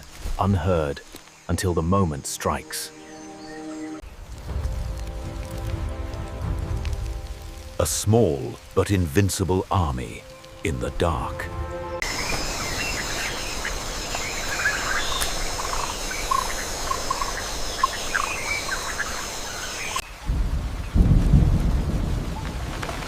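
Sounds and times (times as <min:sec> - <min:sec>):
steady hiss: 0:12.0 - 0:22.9
deep rumble of thunder: 0:20.2 - 0:23.0.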